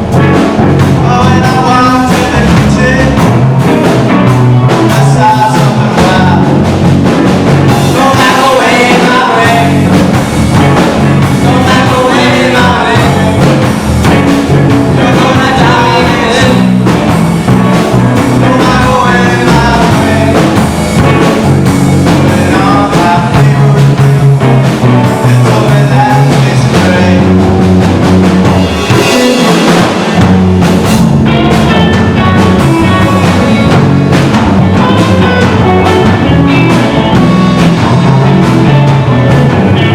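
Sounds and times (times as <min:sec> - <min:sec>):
rock song: 0:00.0 - 0:39.9
person singing: 0:00.9 - 0:03.4, 0:04.7 - 0:06.7, 0:07.7 - 0:10.2, 0:10.8 - 0:13.8, 0:14.8 - 0:17.0, 0:17.6 - 0:20.7, 0:22.0 - 0:24.2, 0:25.1 - 0:27.6, 0:31.7 - 0:38.1.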